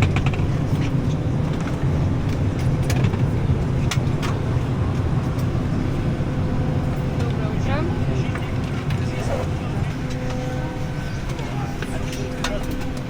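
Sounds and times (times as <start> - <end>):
sharp clicks and knocks: 0.0 - 0.9, 1.5 - 4.4
low rumble in aircraft cabin: 0.0 - 13.0.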